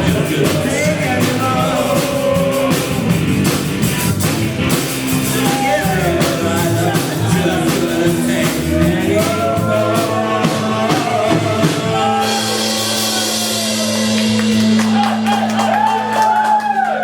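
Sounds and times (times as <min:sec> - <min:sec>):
person singing: 0:00.0 - 0:03.3, 0:05.2 - 0:14.2
guitars: 0:00.0 - 0:16.0
drum kit: 0:00.0 - 0:17.0.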